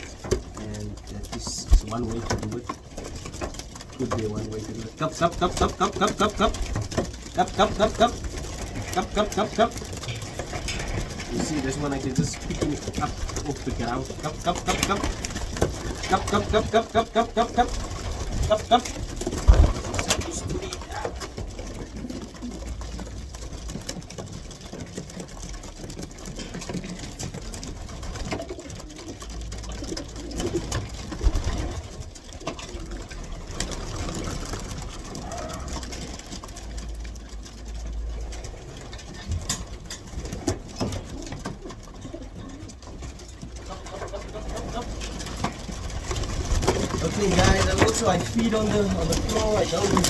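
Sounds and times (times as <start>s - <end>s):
pigeons cooing: 0.0s - 50.0s.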